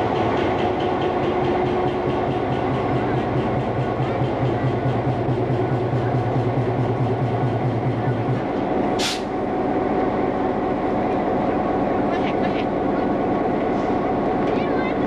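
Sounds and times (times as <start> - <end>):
train running: 0.0 - 15.0
short hiss: 9.0 - 9.3.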